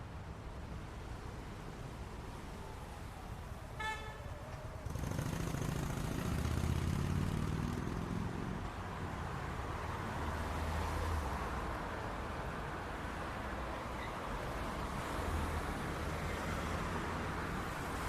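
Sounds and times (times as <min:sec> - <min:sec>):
rumble of traffic engines: 0:00.0 - 0:18.0
car horn toot: 0:03.8 - 0:04.2
nearby vehicle engine: 0:04.8 - 0:08.4.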